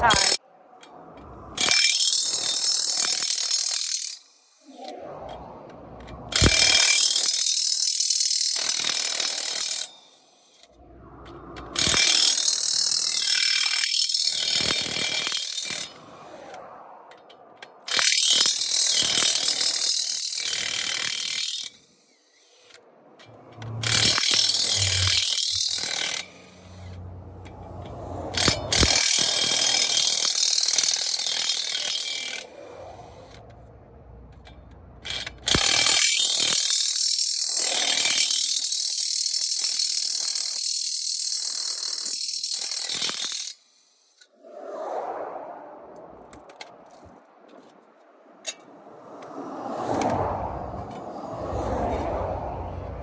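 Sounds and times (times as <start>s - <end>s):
impact wrench rattling and whining: 1.6s - 4.4s, 6.0s - 16.5s, 17.1s - 44.3s.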